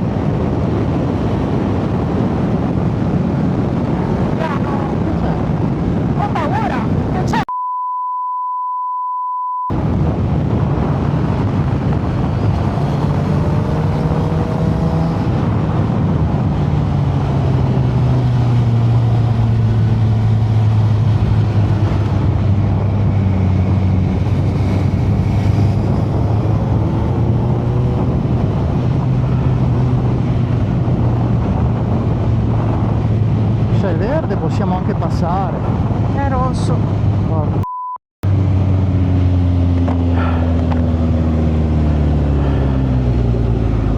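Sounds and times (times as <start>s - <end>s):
wind rush on microphone: 0.0s - 7.4s, 9.7s - 37.6s, 38.2s - 43.9s
electronic beep: 7.5s - 9.7s
motorcycle engine cruising: 9.9s - 37.4s, 38.2s - 43.9s.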